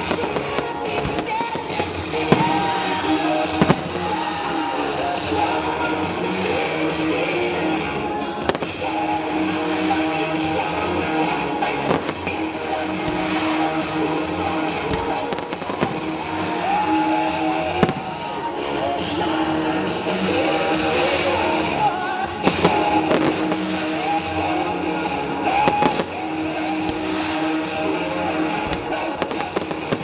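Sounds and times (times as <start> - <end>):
fireworks bursting: 0.0 - 30.0
fireworks crackling: 0.0 - 30.0
pop music over loudspeakers: 0.0 - 30.0.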